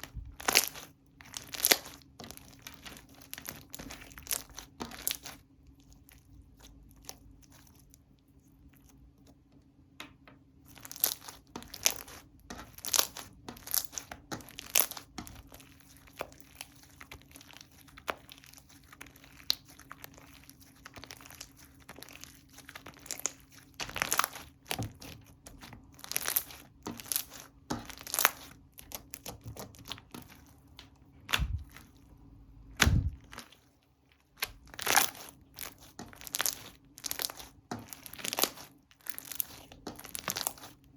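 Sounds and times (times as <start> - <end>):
slime crackling and tearing: 0.0 - 5.4, 10.7 - 30.5, 34.4 - 40.8
deep thuds: 32.8 - 33.3.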